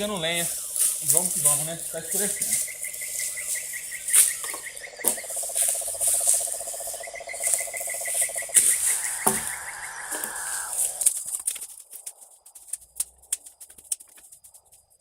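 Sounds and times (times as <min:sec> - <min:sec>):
frogs trilling: 0:00.0 - 0:11.4
insects buzzing: 0:00.0 - 0:15.0.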